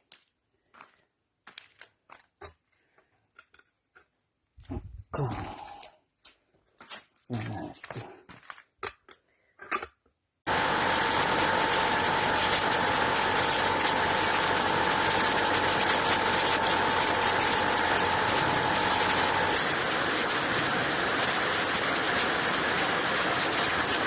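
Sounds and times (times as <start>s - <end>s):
machine whine: 10.5s - 24.0s.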